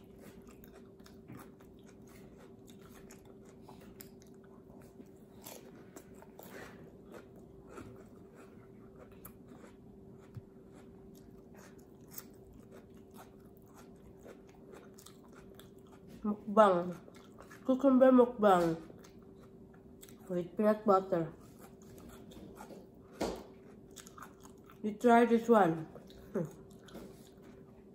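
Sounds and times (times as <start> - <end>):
chewing crunchy cucumber: 0.0 - 18.0, 18.6 - 20.4, 21.3 - 27.9
steady low hum: 0.0 - 27.9.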